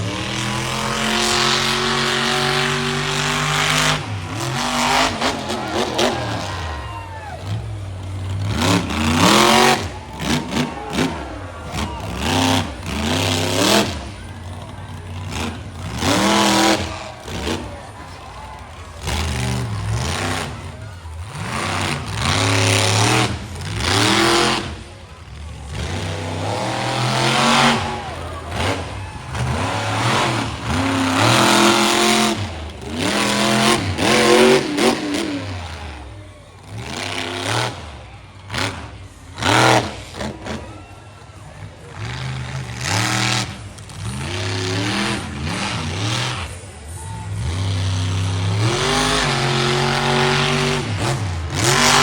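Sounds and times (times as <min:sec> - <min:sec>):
truck engine revving hard: 0:00.0 - 0:52.0.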